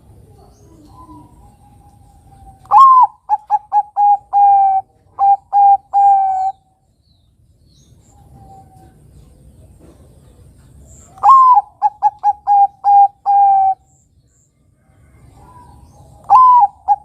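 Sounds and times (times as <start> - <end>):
dove cooing: 0.0 - 6.6, 8.1 - 13.9, 15.0 - 17.0.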